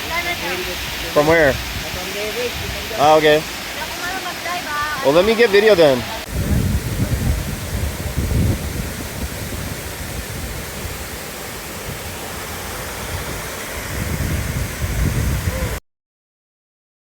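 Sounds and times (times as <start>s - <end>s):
waterfall rushing: 0.0s - 15.8s
wind rumble on microphone: 0.8s - 3.0s, 6.2s - 15.8s.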